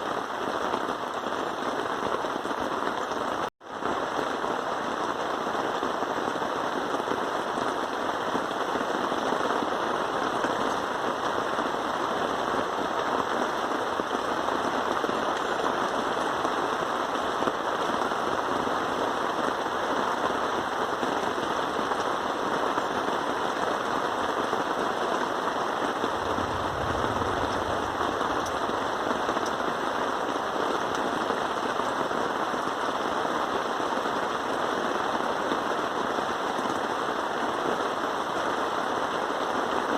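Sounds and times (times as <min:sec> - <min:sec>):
heavy rain pattering: 0:00.0 - 0:39.9
low rumble: 0:26.1 - 0:29.0.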